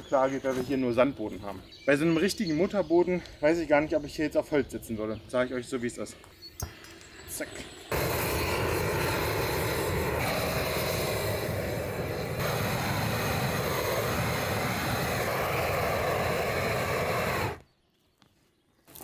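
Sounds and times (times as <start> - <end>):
gas burner torch roaring: 7.8 - 17.7.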